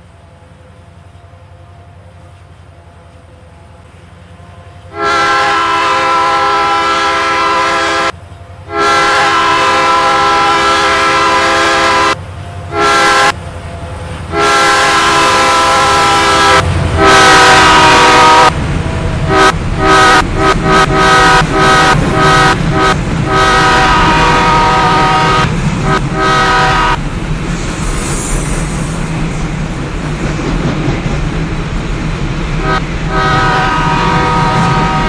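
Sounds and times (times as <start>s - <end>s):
locomotive air horn: 4.6s - 18.6s, 19.3s - 27.0s, 32.6s - 35.0s.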